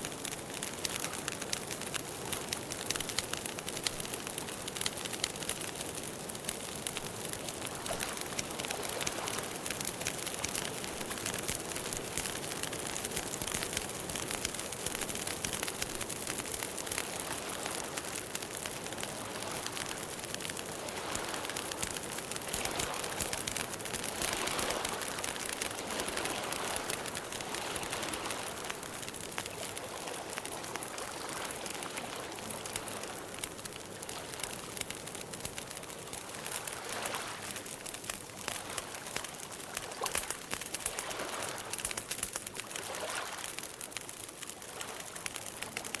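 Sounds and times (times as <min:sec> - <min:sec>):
campfire crackling: 0:00.0 - 0:46.0.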